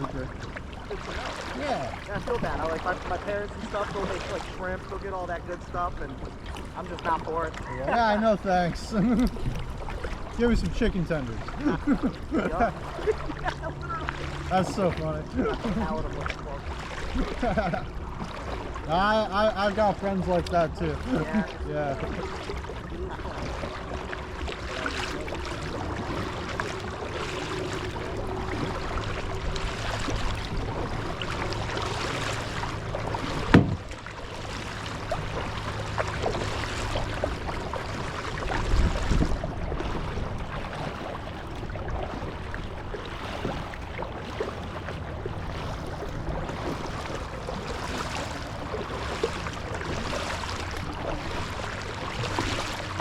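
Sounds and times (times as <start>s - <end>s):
water splashing around kayak: 0.0s - 53.0s
dull thump: 33.4s - 34.0s.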